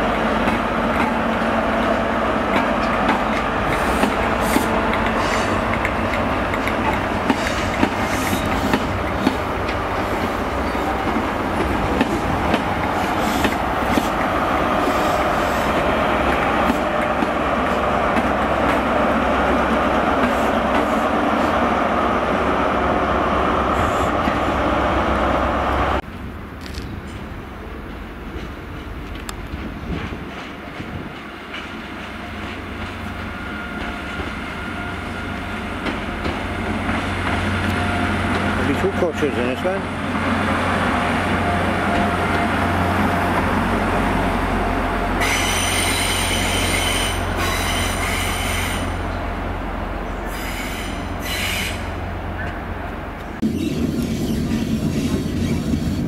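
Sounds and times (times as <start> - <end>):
train passing: 0.0 - 56.0.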